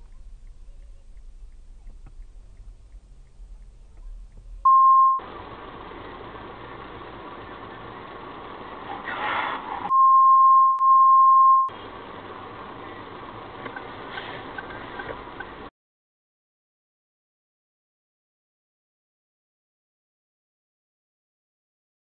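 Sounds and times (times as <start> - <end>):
car road and engine noise: 0.0 - 10.0, 11.2 - 15.7
high-pitched censor bleep: 4.6 - 5.2, 9.9 - 11.7.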